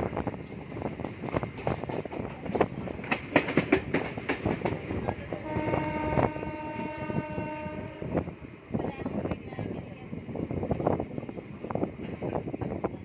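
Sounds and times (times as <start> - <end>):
train wheels clattering over joints: 0.4 - 6.3
train horn: 5.4 - 8.2.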